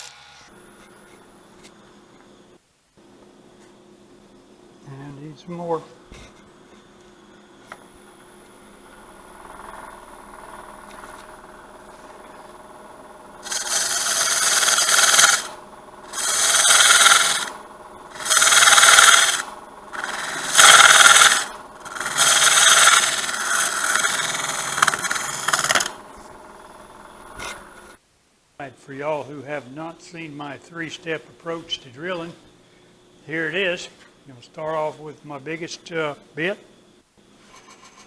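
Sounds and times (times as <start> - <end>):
wood lathe running: 7.8 - 28.0
turning tool cutting wood: 8.2 - 28.0.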